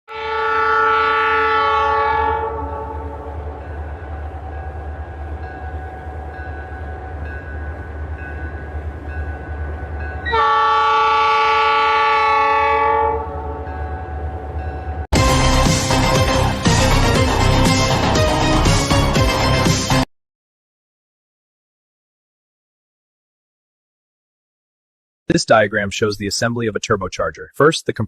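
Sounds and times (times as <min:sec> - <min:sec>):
train horn blasts: 0:00.1 - 0:06.3, 0:10.2 - 0:14.6
running train rumble: 0:00.2 - 0:20.0.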